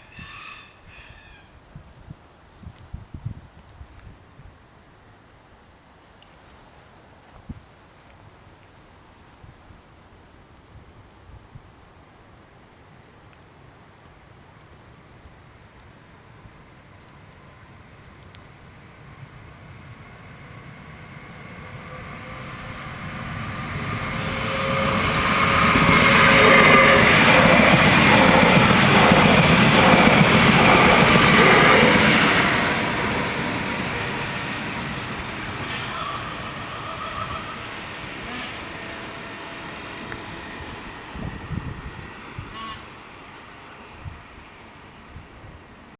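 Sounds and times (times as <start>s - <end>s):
train wheels on rails: 11.9s - 45.9s
electric train passing: 12.0s - 45.9s.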